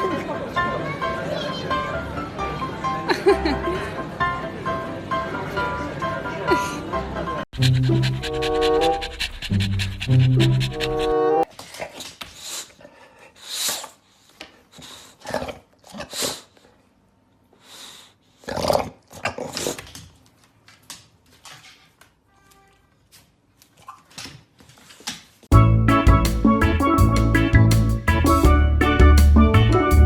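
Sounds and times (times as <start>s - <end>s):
puppy grunting and growling: 7.6s - 11.4s.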